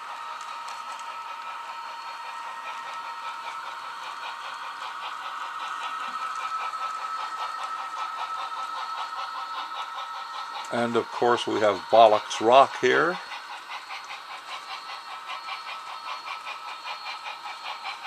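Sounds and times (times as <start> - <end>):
model train high whine: 0.0 - 18.0.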